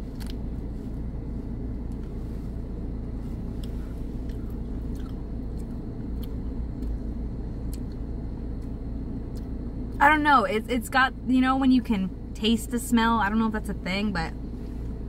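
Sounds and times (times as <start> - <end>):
low car interior rumble: 0.0 - 15.0
chewing cookie: 3.6 - 7.0.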